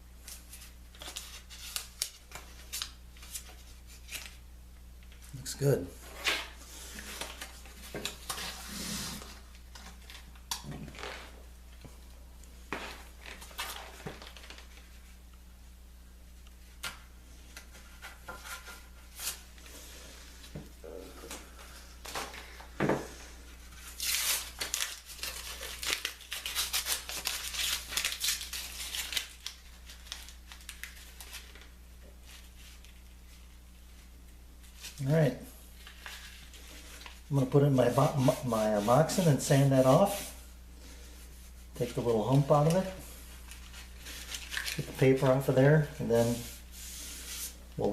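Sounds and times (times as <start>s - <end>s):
dense crinkling and tearing: 23.8s - 33.4s, 41.8s - 46.5s.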